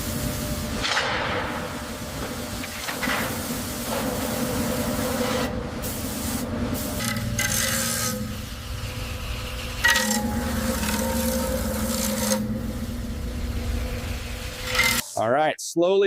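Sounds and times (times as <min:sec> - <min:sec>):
machine hum: 0:00.0 - 0:15.2
heavy steel part scraping: 0:09.8 - 0:12.9.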